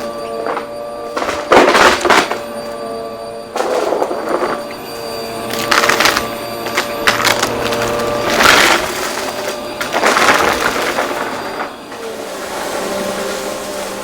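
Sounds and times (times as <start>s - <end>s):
debris crunching in vacuum: 0.0s - 14.0s
vacuum cleaner running: 0.0s - 14.0s.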